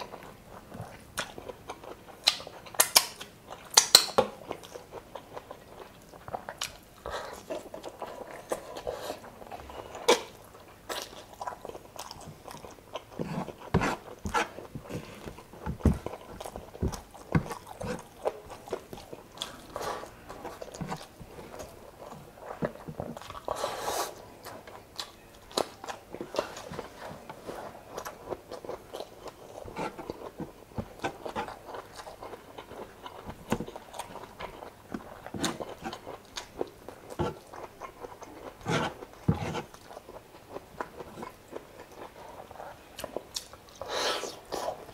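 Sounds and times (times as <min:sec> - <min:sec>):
person chewing and biting: 0:27.7 - 0:44.8.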